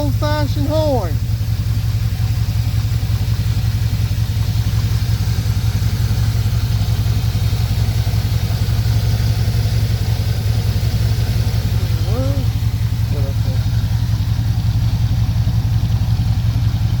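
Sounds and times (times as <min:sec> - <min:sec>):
pickup engine idling: 0:00.0 - 0:17.0.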